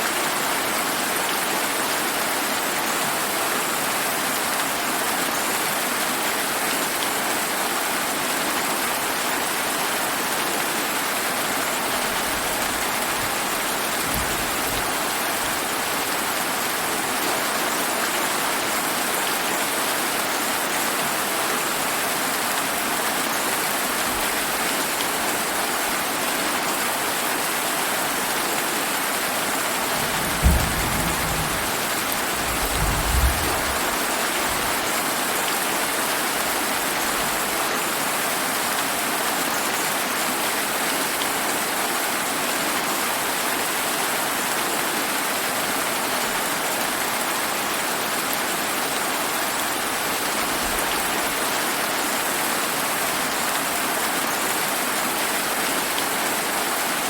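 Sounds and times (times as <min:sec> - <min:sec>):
rain falling: 0:00.0 - 0:57.0
thunder rumbles: 0:29.7 - 0:34.7.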